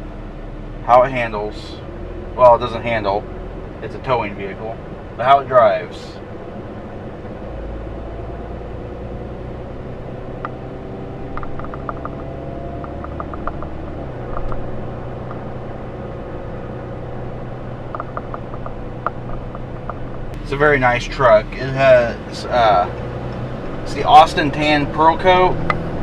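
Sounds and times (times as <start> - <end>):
diesel truck engine drone: 0.0 - 26.0.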